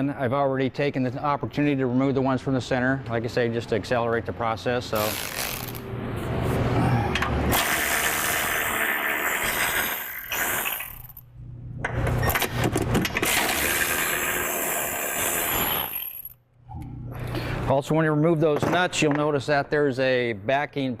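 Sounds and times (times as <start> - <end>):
power wrench running: 7.4 - 11.2, 13.1 - 16.4.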